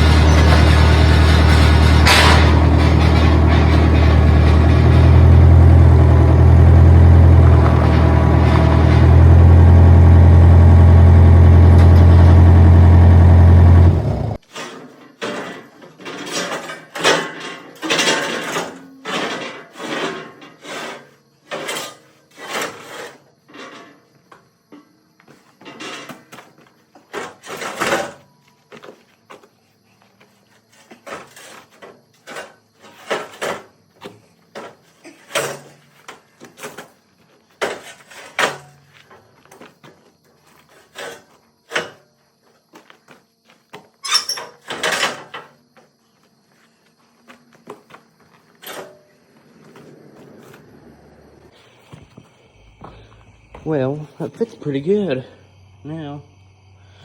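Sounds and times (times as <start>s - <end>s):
metal clanking and scraping: 0.0s - 13.5s, 14.4s - 24.1s, 25.6s - 28.3s, 30.8s - 33.8s, 37.6s - 39.8s, 40.4s - 42.1s, 44.0s - 45.6s, 48.5s - 50.7s.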